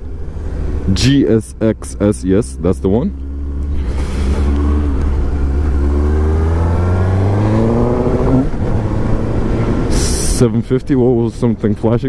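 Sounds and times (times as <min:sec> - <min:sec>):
motorcycle engine accelerating: 0:03.1 - 0:09.9.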